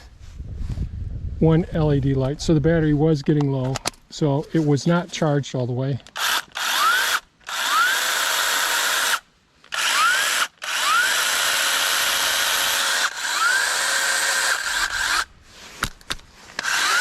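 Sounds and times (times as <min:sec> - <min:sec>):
mini chainsaw motor whine: 0:06.2 - 0:15.3, 0:16.6 - 0:17.0.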